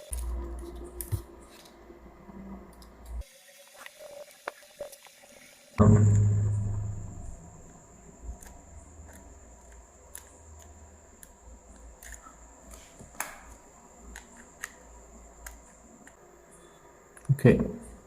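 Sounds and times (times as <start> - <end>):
low hum: 5.8 - 8.9.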